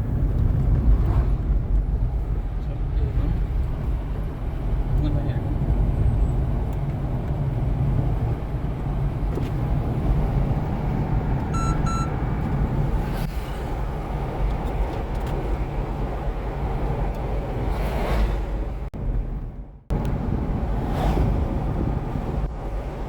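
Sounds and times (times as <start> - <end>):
vehicle rumbling: 0.0 - 23.0
short electronic beeps: 11.5 - 12.2.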